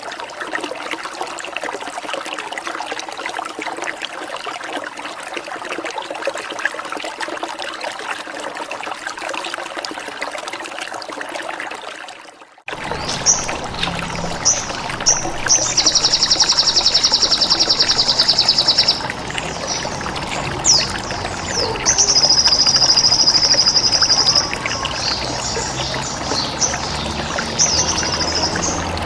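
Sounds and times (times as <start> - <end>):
trickling water: 0.0 - 29.0
songbird chirps and trills: 12.7 - 29.0.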